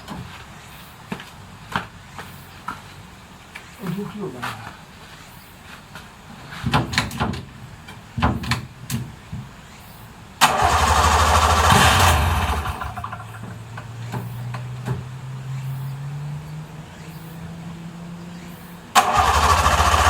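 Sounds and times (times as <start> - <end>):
two-stroke engine idling: 10.4 - 15.3, 19.0 - 20.0
engine starter cranking: 10.4 - 15.9, 18.3 - 20.0.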